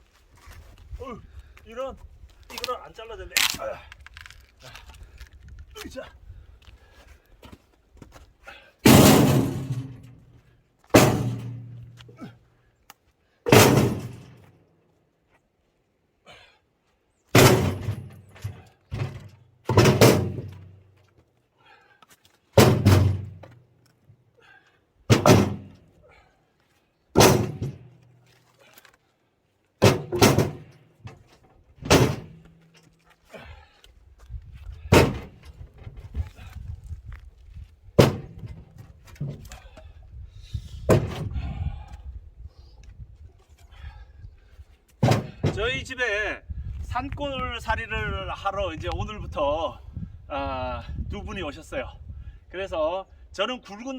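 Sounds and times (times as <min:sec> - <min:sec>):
logs thudding down: 0:08.8 - 0:10.2, 0:10.8 - 0:12.3, 0:13.5 - 0:14.5, 0:17.3 - 0:21.2, 0:22.5 - 0:23.6, 0:25.1 - 0:25.9, 0:27.1 - 0:29.0, 0:29.8 - 0:33.7, 0:34.6 - 0:36.6, 0:37.9 - 0:39.9, 0:40.8 - 0:41.6, 0:44.9 - 0:45.8.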